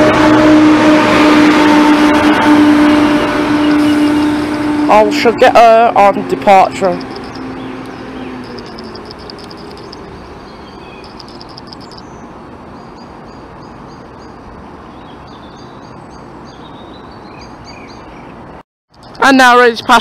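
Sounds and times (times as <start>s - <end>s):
steady background rush: 5.0s - 10.2s
small birds chirping: 6.9s - 20.0s.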